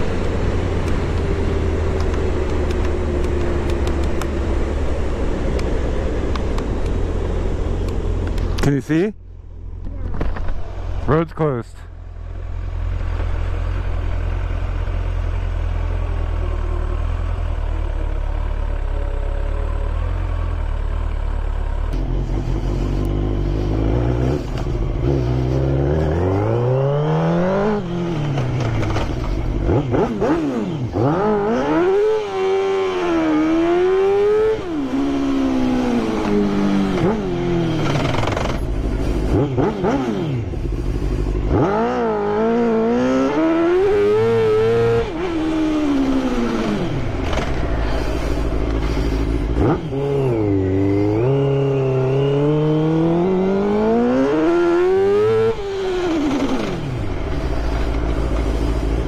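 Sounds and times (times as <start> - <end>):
motorcycle engine revving: 11.9 - 59.0.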